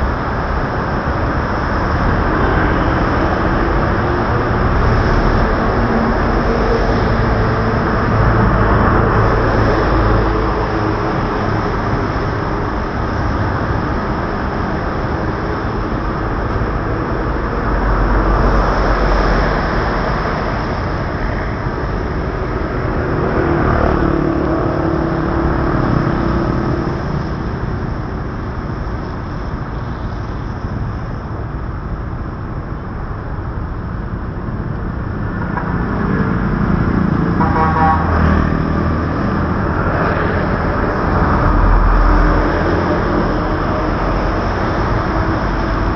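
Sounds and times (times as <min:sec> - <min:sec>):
car and motorbike engines: 0:00.0 - 0:45.9
wind: 0:00.0 - 0:45.9
vehicle horn: 0:37.4 - 0:38.6.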